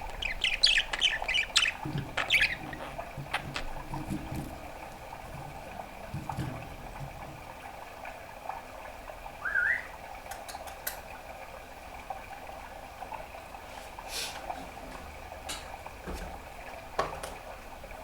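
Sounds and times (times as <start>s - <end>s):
budgerigar chirp: 0.0s - 3.7s
budgerigar clicks: 0.0s - 3.8s, 9.5s - 11.1s.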